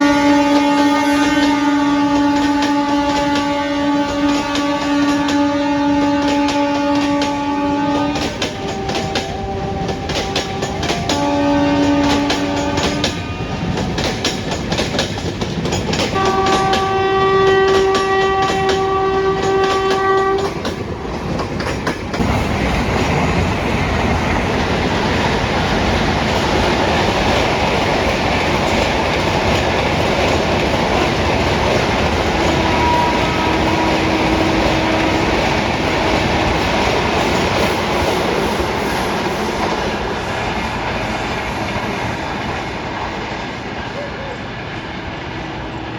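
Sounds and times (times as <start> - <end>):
locomotive horn blasts: 0.0 - 13.8, 16.2 - 20.6, 32.3 - 36.3
train wheels rumbling on rails: 0.0 - 45.9
wheels clicking over rail joints: 1.4 - 44.4.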